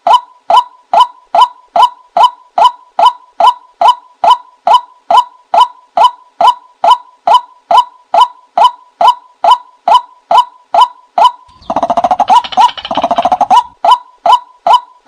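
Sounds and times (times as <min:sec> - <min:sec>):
rapid chattering bird calls: 0:11.5 - 0:13.8.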